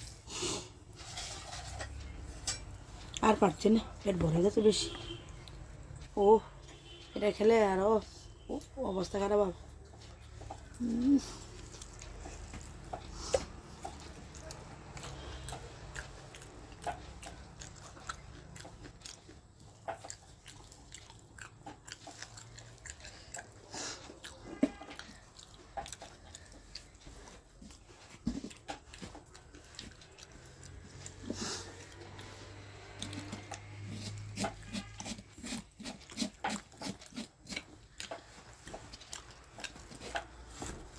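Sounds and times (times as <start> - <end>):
person chewing food: 0.0 - 7.6, 8.3 - 40.9.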